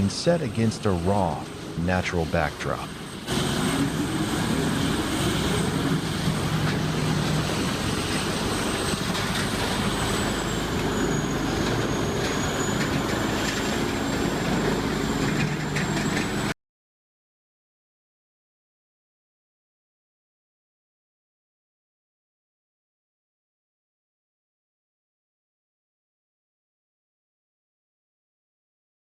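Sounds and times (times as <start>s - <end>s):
thin high whine: 0.0s - 16.6s
wood grinder shredding logs: 3.3s - 16.5s.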